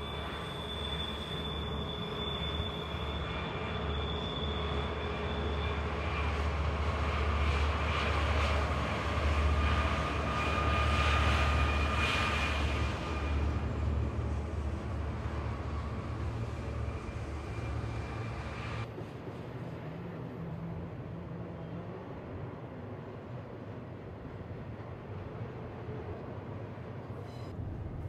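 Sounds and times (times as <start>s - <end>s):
locomotive engine drone: 0.0s - 26.6s.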